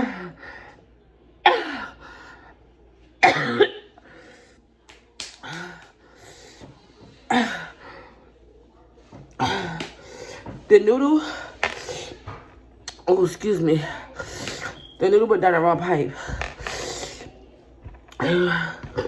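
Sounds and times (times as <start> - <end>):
person coughing hard: 3.2 - 3.9.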